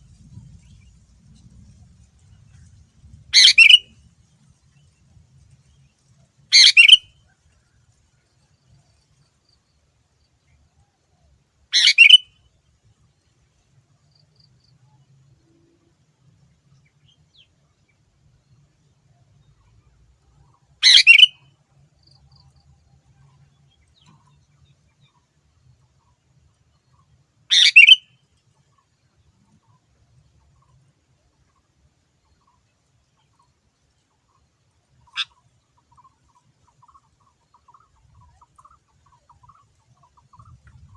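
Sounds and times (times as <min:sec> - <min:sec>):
bird two-part call: 0:03.4 - 0:03.8, 0:06.5 - 0:07.1, 0:11.8 - 0:12.3, 0:20.8 - 0:21.4, 0:27.5 - 0:28.1.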